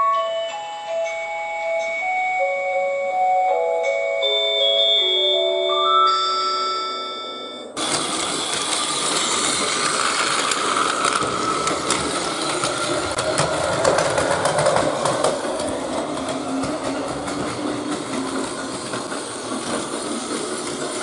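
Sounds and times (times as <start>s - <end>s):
toy train motor whirring: 7.8s - 21.0s.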